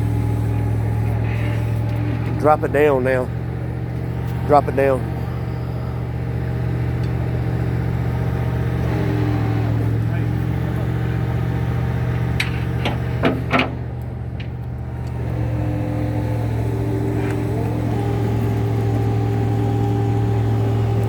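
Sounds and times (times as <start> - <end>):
hydraulic lift whine: 0.0 - 21.0
truck engine running: 0.0 - 21.0
sharp metallic clanks: 12.4 - 14.6.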